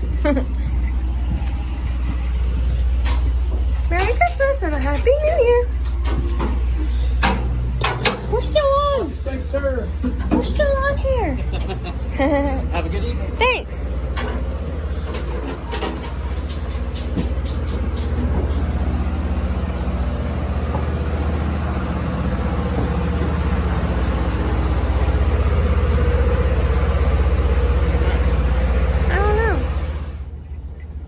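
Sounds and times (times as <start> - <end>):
train coach rumbling on track: 0.0 - 30.4.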